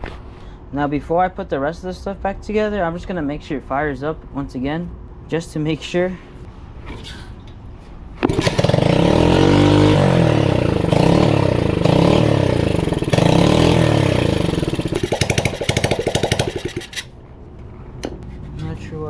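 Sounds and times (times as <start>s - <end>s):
motorbike engine revving: 8.2s - 17.1s.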